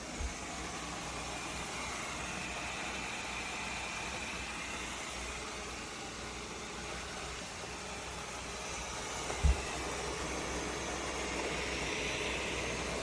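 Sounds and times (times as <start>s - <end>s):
robot vacuum whirring: 0.0s - 13.0s
short low thump: 9.4s - 9.7s.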